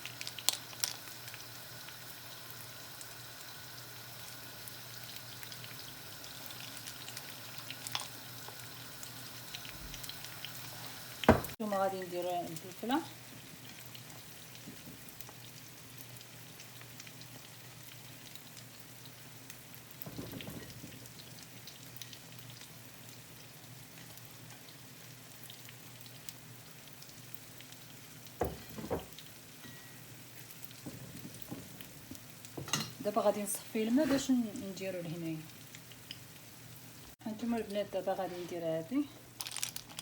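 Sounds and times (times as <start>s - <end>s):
food sizzling in a pan: 0.0s - 40.0s
soft knocks: 11.3s - 11.6s.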